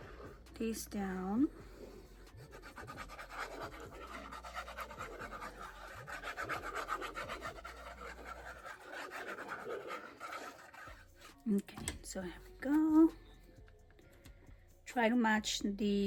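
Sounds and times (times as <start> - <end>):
paper rubbed by hand: 1.8 - 11.1.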